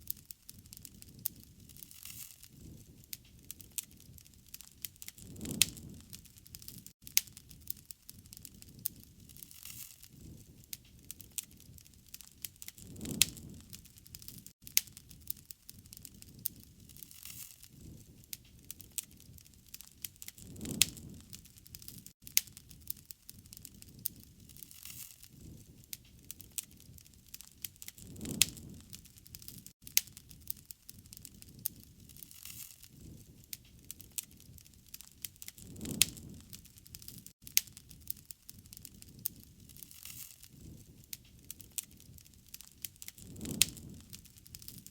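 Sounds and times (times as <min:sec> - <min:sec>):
burning wood popping: 0:00.0 - 0:44.9
campfire crackling: 0:00.0 - 0:44.9
low rumble of flame: 0:00.0 - 0:44.9.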